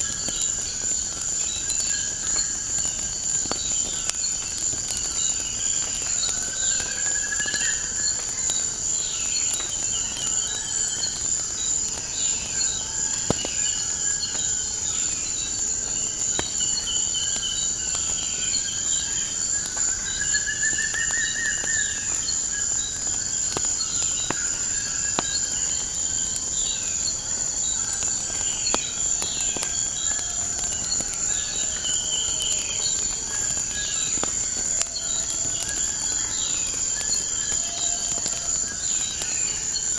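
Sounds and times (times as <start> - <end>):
high-pitched insect trill: 16.6 - 39.9
wood fire crackling: 25.2 - 38.8
birds calling: 33.4 - 38.2.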